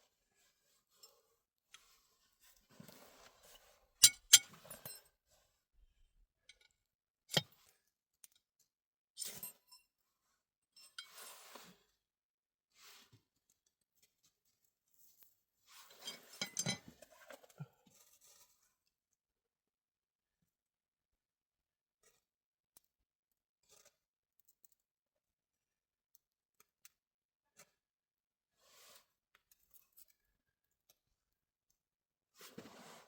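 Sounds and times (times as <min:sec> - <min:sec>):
objects clinking and knocking: 0:04.0 - 0:05.0, 0:16.0 - 0:17.4.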